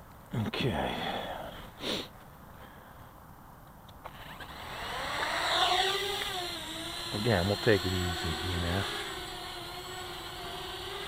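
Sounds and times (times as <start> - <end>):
drone propellers whining: 4.0 - 11.0.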